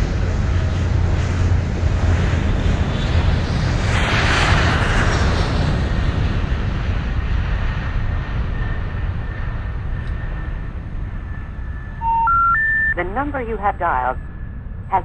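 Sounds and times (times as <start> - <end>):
faint steady high tone: 12.0 - 14.5.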